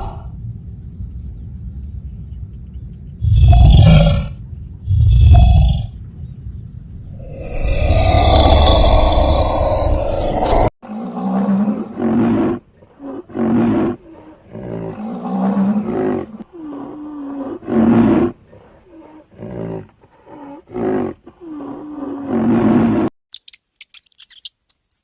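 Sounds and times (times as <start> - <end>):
lion roaring: 7.1 - 23.1.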